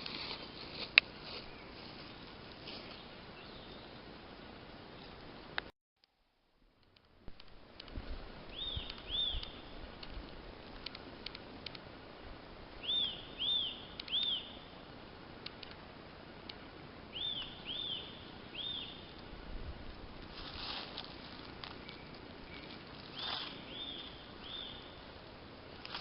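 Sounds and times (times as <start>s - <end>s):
faint clicks: 6.8s - 11.8s, 15.4s - 15.8s
bird whistling calls: 8.5s - 9.7s, 12.8s - 14.6s, 17.1s - 19.1s, 21.8s - 25.0s.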